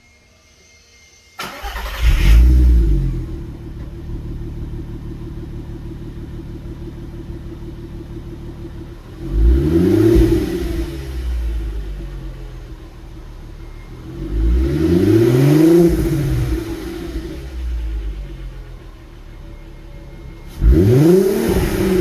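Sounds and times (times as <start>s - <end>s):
car engine starting and idling: 1.4s - 22.0s
engine revving: 1.4s - 22.0s.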